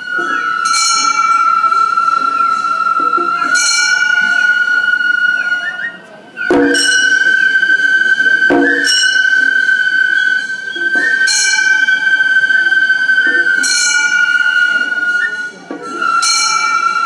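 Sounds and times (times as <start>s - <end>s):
bamboo flute long note: 0.0s - 17.0s.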